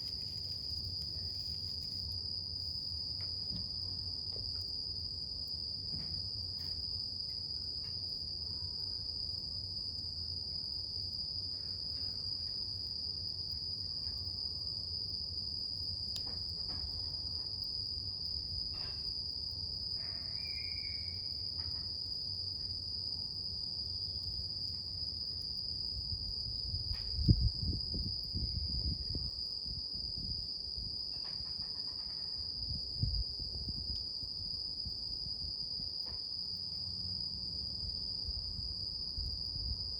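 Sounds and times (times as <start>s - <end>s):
insects trilling: 19.9s - 21.6s.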